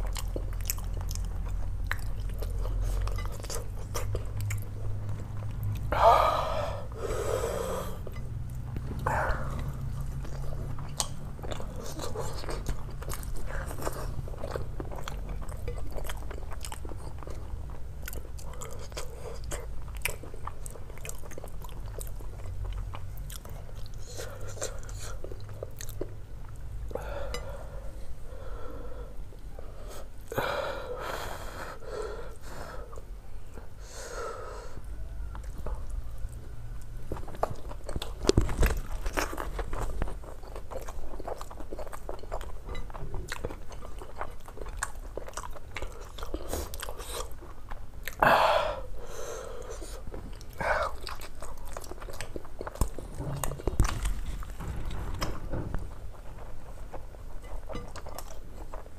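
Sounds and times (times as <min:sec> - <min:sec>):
person chewing and smacking: 0:00.0 - 0:06.6, 0:08.0 - 0:27.6, 0:35.3 - 0:48.3, 0:48.9 - 0:58.9
breathy mouth sounds: 0:05.8 - 0:14.2, 0:48.1 - 0:54.7.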